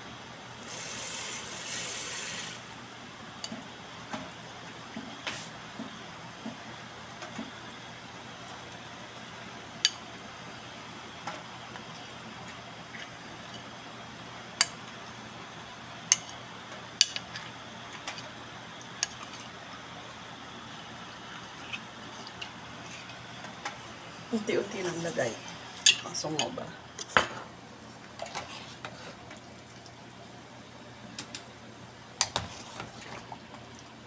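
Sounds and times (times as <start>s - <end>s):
sauce hissing in pot: 0.6s - 2.7s.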